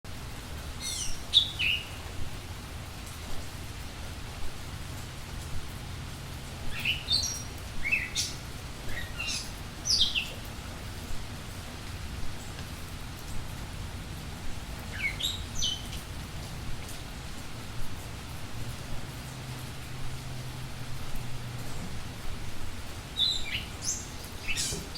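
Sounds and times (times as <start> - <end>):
budgerigars chirping: 0.8 - 2.0, 6.8 - 10.3, 23.2 - 24.9.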